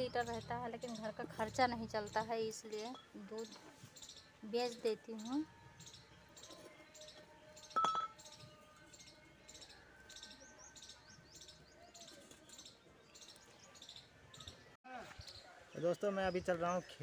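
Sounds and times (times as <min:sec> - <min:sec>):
small birds chirping: 0:00.0 - 0:17.0
sharp metallic clink: 0:07.8 - 0:08.2.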